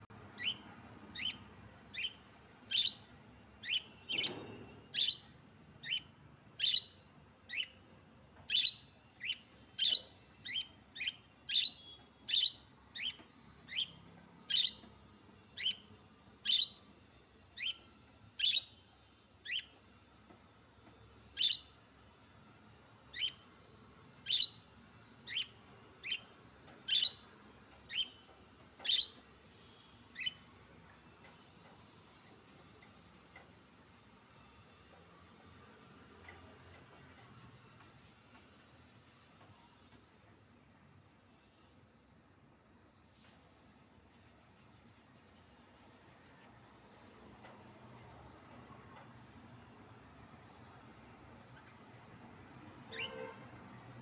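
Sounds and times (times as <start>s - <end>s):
budgerigars chirping: 0.4s - 3.0s, 3.6s - 4.3s, 5.0s - 7.8s, 8.5s - 14.9s, 15.6s - 15.8s, 16.4s - 16.8s, 23.2s - 23.4s, 24.3s - 24.6s, 25.3s - 26.3s, 26.9s - 27.2s, 28.9s - 29.2s, 52.9s - 53.3s.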